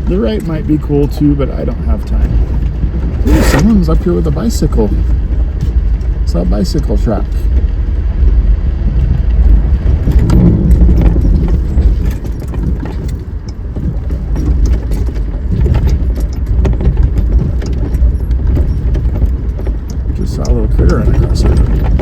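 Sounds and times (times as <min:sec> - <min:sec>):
vehicle rumbling on dirt trail: 0:00.0 - 0:22.0
small clicks and rattles: 0:09.0 - 0:22.0.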